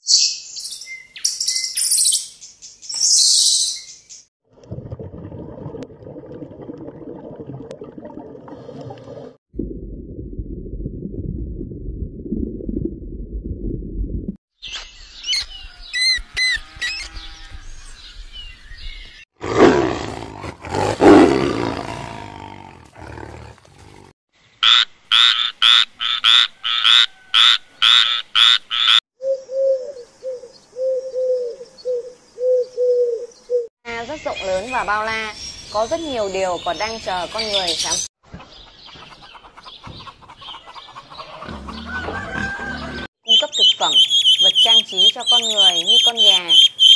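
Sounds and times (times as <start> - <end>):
tiger roaring: 19.4 - 24.1.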